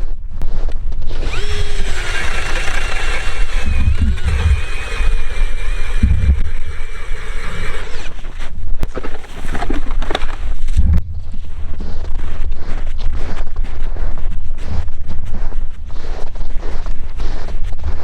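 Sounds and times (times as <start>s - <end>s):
knocks and scrapes: 0.6s - 13.7s
drill motor whining: 1.1s - 8.6s.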